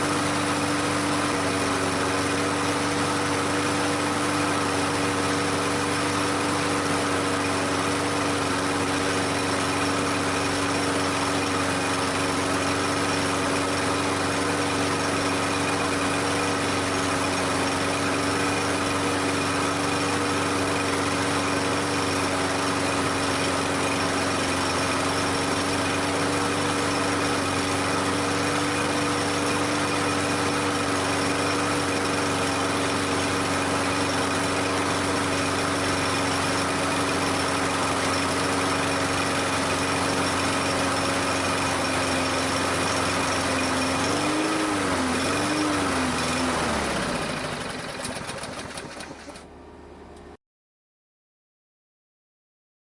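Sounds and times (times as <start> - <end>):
lawn mower engine running: 0.0 - 50.4.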